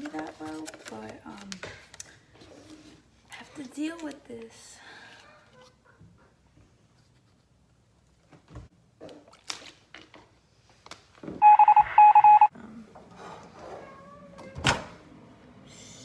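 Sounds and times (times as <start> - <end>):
electronic device beeping: 11.4 - 12.5.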